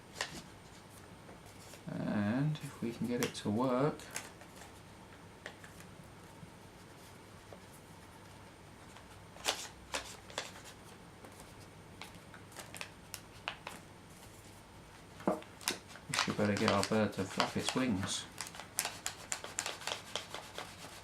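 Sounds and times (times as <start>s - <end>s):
paper rustling and crinkling: 8.8s - 14.6s, 15.2s - 21.0s.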